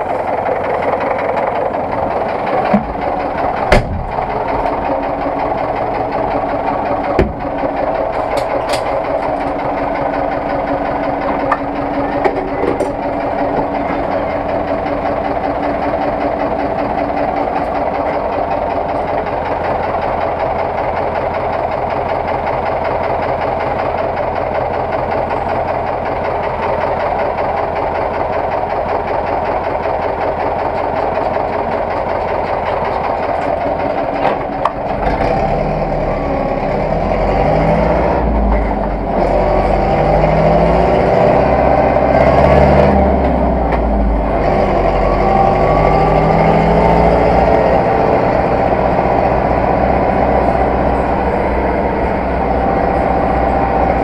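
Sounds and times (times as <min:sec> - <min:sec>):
tractor diesel engine running: 0:00.0 - 0:54.0
clunk: 0:02.4 - 0:04.9, 0:06.4 - 0:09.6, 0:11.3 - 0:14.2, 0:32.2 - 0:35.2.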